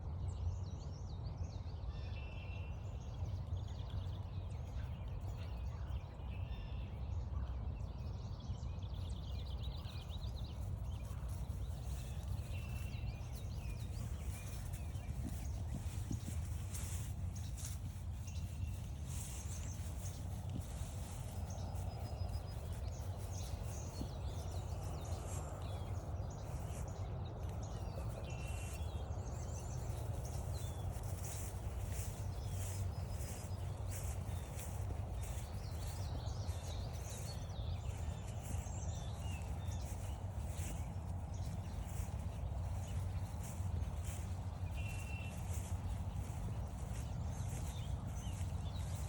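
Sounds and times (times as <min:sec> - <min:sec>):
birds singing and chirping: 0:09.0 - 0:49.0
footsteps on a trail: 0:09.6 - 0:49.0.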